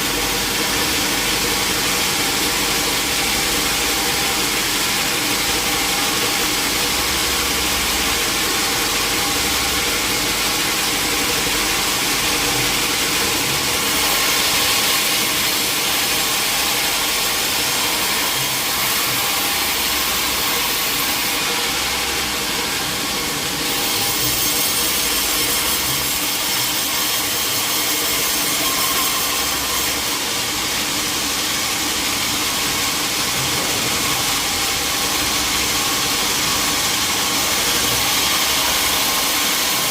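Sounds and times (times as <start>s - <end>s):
saw cutting through log: 0.0s - 39.9s
steady machine engine: 29.5s - 39.9s.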